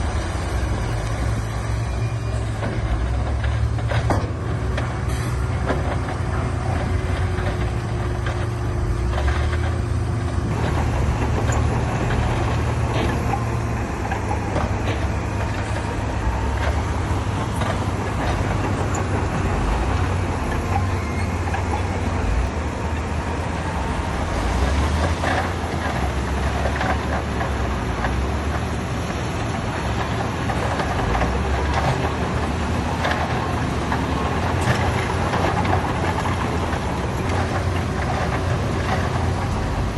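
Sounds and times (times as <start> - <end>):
diesel machinery engine drone: 0.0 - 39.9
short knocks and clanks: 2.4 - 22.5.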